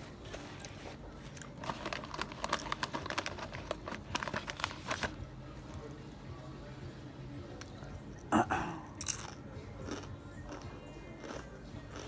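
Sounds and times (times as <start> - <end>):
sandwich wrapper crinkling: 0.3 - 5.2.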